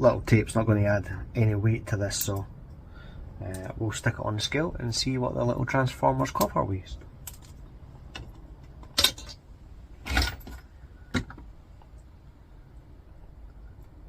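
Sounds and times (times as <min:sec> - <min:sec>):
metallic clinks and rattles: 0:08.2 - 0:09.4.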